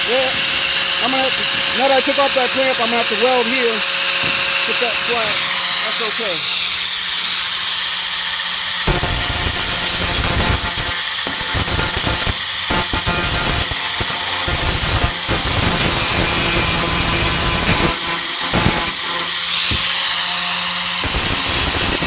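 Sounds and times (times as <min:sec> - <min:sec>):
angle grinder grinding steel: 0:00.0 - 0:22.0.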